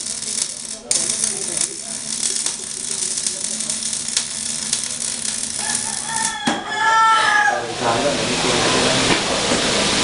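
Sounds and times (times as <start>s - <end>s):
arc welding crackle: 0.0s - 6.5s.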